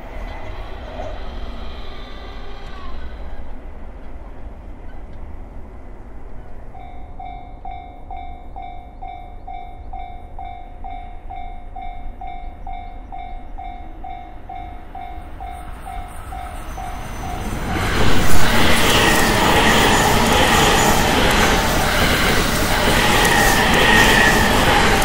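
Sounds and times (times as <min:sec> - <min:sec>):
train rushing past: 0:00.0 - 0:07.3, 0:12.7 - 0:25.0
level-crossing alarm dinging: 0:12.5 - 0:25.0.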